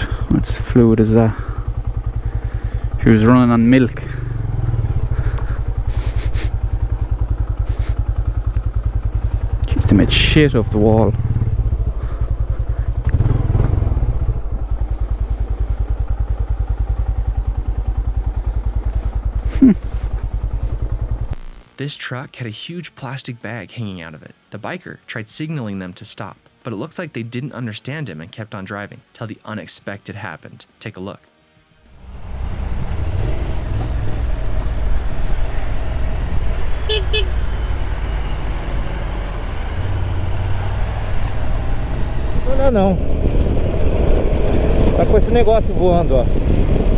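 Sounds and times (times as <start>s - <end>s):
motorcycle engine running: 0.0s - 21.8s, 31.9s - 46.9s
motorcycle horn toots: 36.8s - 37.5s
wind on helmet: 42.3s - 45.2s, 46.0s - 46.9s.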